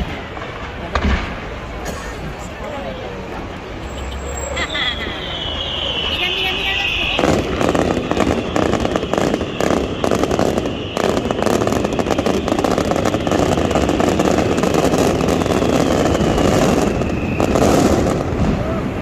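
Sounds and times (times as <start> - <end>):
fireworks crackling and popping: 0.0 - 19.0
falling firework whistle: 3.8 - 19.0.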